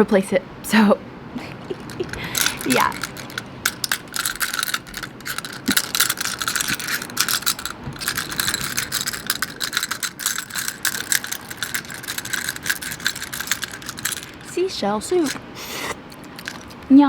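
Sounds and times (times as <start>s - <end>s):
seashells rattling and clicking: 1.6s - 16.9s.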